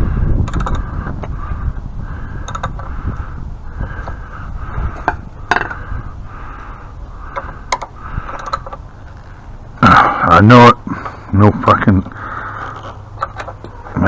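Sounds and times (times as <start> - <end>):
sharp metal clicks: 0.4 - 0.8, 2.4 - 2.9, 7.3 - 8.8
ratchet wrench rasping: 2.4 - 2.8.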